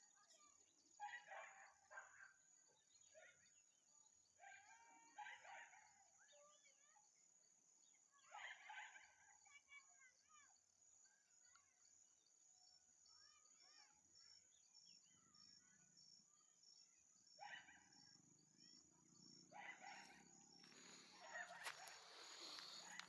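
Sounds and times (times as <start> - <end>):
natural ambience: 0.0 - 23.0
faint bird chirps: 7.8 - 23.0.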